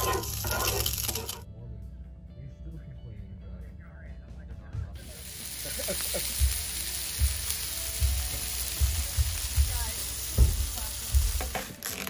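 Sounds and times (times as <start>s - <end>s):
food sizzling on a griddle: 0.0s - 1.4s, 5.0s - 12.0s
low thumps: 7.2s - 11.5s.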